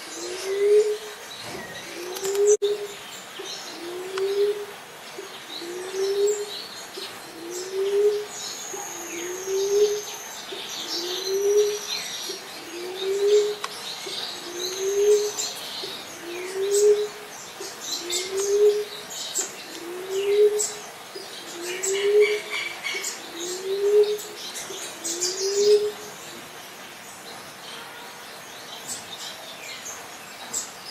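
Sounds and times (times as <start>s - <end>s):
dove cooing: 0.0s - 1.2s, 3.7s - 10.1s, 10.8s - 19.0s, 19.6s - 24.4s, 25.0s - 26.1s
small birds chirping: 0.0s - 30.9s.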